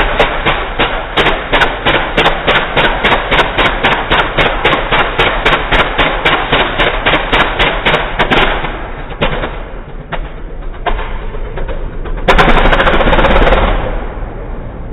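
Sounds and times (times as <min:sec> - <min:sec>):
sharp engine knocks: 0:00.0 - 0:14.2
diesel engine rumble: 0:07.7 - 0:14.9.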